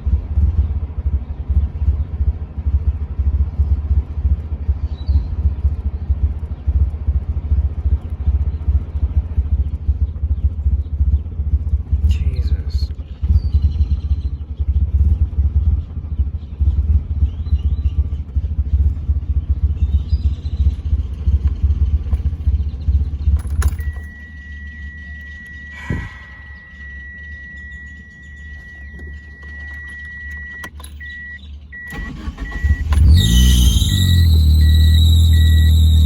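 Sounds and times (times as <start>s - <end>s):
car engine idling roughly: 0.0s - 29.5s, 31.4s - 36.0s
high-pitched warning tone: 23.7s - 36.0s
ignition switch click: 26.7s - 33.1s.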